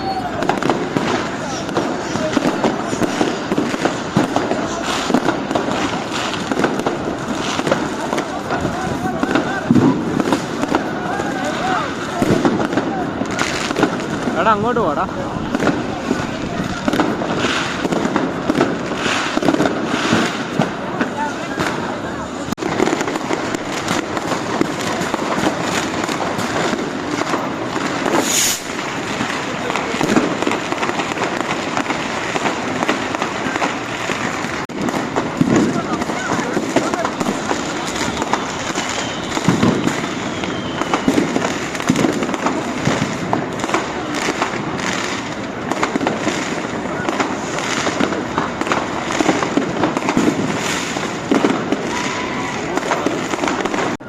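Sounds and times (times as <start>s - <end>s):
fireworks and firecrackers banging: 0.0s - 54.0s.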